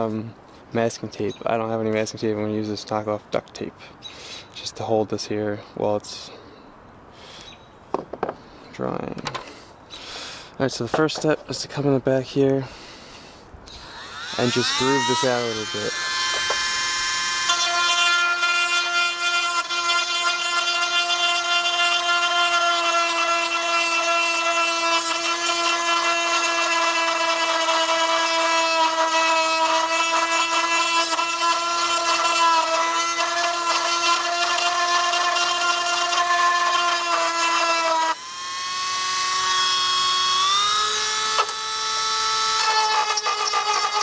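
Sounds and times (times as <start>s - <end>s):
rotary tool whining: 13.7s - 44.0s.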